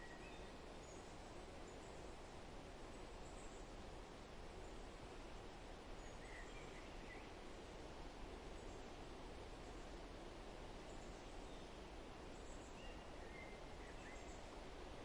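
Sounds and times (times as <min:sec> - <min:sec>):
faint bird chirps: 0:00.0 - 0:01.1, 0:06.0 - 0:07.4, 0:12.4 - 0:14.5
low background hiss: 0:00.0 - 0:15.0.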